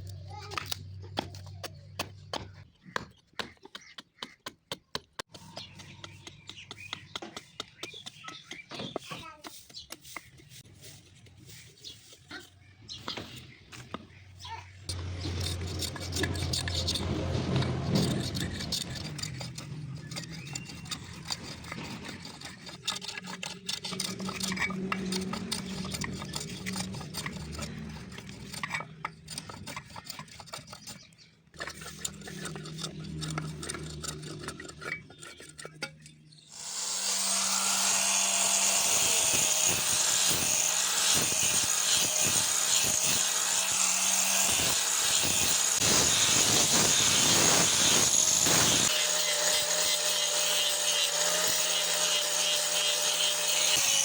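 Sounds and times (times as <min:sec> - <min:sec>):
electric power tool whining: 0:36.5 - 0:54.0.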